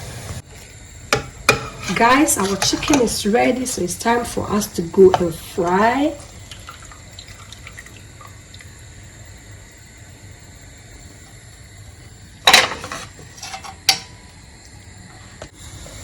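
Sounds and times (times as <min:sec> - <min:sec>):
low steady background noise: 0:00.4 - 0:16.0
kitchenware clattering: 0:01.2 - 0:05.9, 0:12.5 - 0:14.2.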